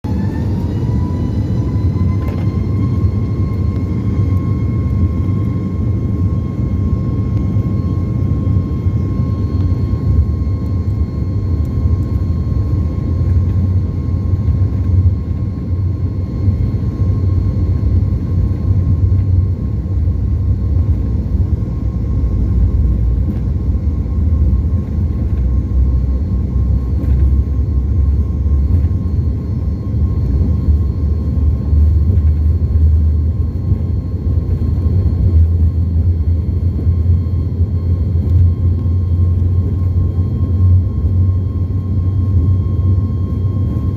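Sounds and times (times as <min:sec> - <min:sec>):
jet engines rumbling and whining: 0:00.0 - 0:43.9.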